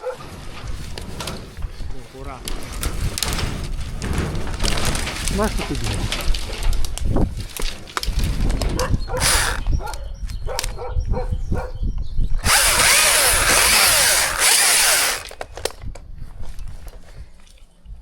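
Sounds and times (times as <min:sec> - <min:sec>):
knocks and clatter: 0:00.2 - 0:08.9
chainsaw cutting wood: 0:09.2 - 0:09.7, 0:12.4 - 0:15.4.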